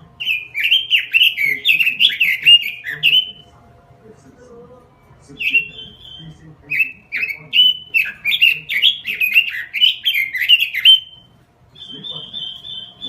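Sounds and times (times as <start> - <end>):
bird singing whistled notes: 0.2 - 3.4, 5.4 - 13.0.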